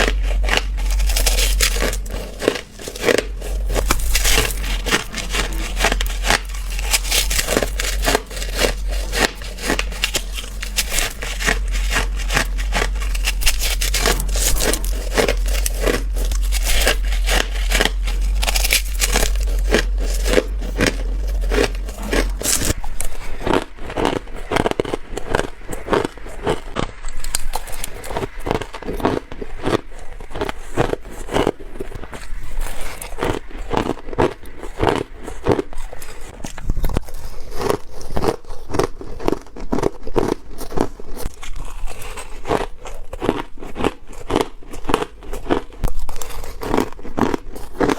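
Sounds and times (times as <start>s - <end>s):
low hum: 0.0s - 37.5s
biting and crunching ice: 0.0s - 47.9s.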